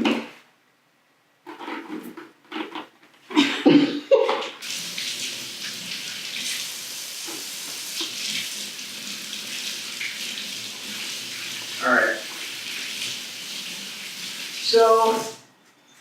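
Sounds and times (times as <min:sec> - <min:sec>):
tap running: 0:04.6 - 0:14.6
hands washed under water: 0:04.6 - 0:15.4.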